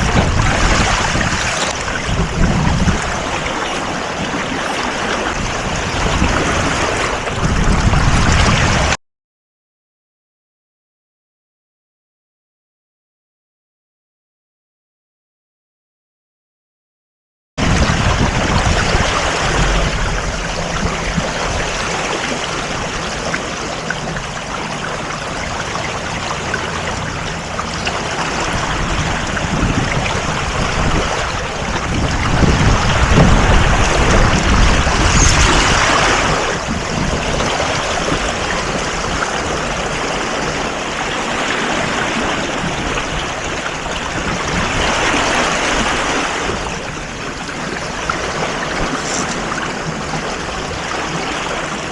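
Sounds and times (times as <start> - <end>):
water rushing past a boat: 0.0 - 9.0, 17.6 - 51.9
low rumbling surges: 17.8 - 37.0.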